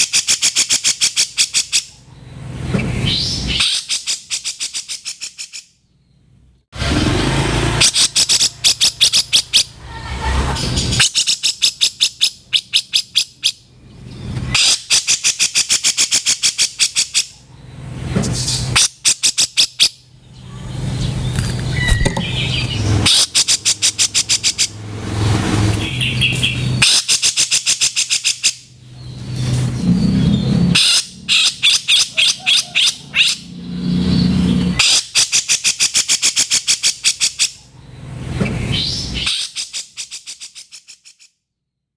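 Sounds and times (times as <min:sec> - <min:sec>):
bulbul chattering calls: 0:30.2 - 0:33.5.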